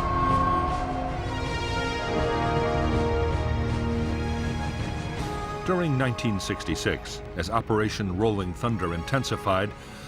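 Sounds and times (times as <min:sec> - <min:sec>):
heavy low drone: 0:00.0 - 0:05.0
sustained music chords: 0:00.0 - 0:07.3.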